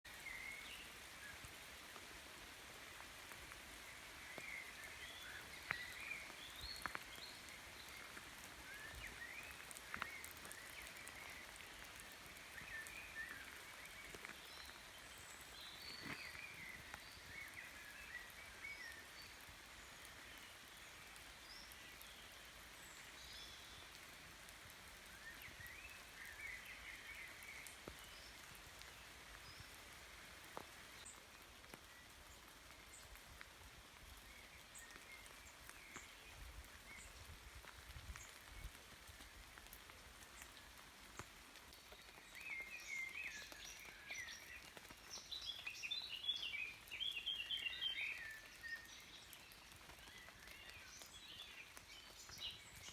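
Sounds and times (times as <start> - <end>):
river flowing: 0.1 - 31.4
bird chirps and song: 3.9 - 24.0, 41.7 - 52.9.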